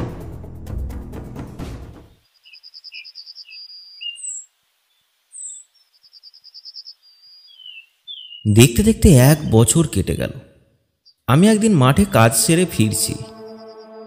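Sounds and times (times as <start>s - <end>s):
background music: 0.0s - 2.2s, 11.5s - 14.0s
birds singing trills and whistles: 2.4s - 8.5s, 11.0s - 11.3s.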